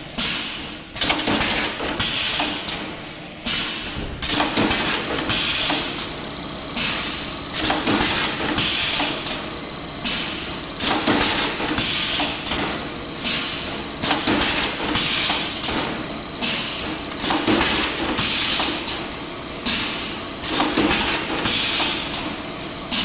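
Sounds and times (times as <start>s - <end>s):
steady machine noise: 0.0s - 23.0s
sharp machine knock: 0.2s - 2.9s, 3.5s - 6.0s, 7.6s - 9.3s, 10.2s - 18.9s, 19.7s - 22.3s.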